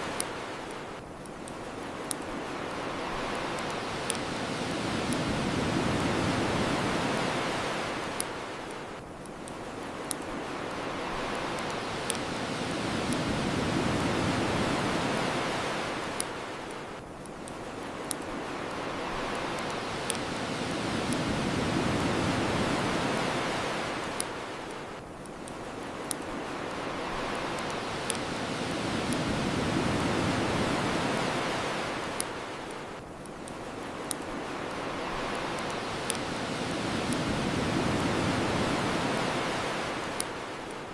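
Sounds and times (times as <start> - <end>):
bonfire crackling and popping: 0.0 - 40.9
ocean waves washing onto shore: 0.0 - 40.9.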